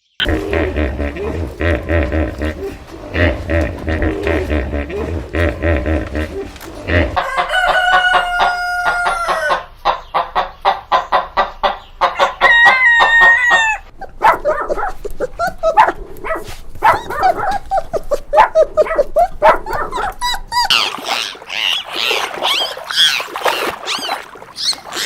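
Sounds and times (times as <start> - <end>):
chicken clucking: 0.2 - 13.8
rooster crowing: 7.0 - 9.7, 12.2 - 13.9.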